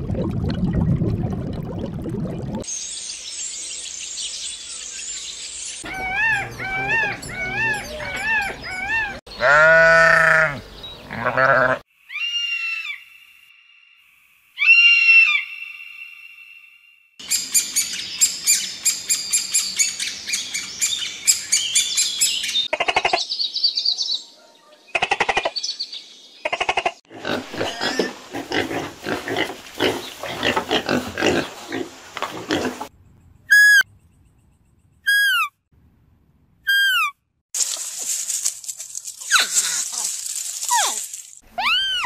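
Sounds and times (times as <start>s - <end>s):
high-pitched bird chirping: 5.8s - 9.2s, 33.4s - 35.5s, 36.7s - 37.2s, 41.6s - 42.0s
piglets squealing: 5.8s - 10.5s, 35.1s - 35.5s, 36.7s - 37.1s, 40.7s - 42.0s.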